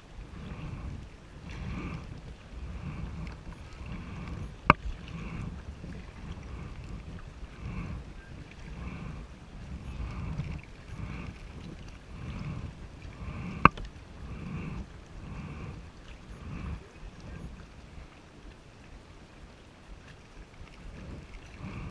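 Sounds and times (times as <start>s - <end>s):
kayak paddle swishing and splashing: 0.0s - 21.9s
paddle knocking on kayak: 3.0s - 8.5s.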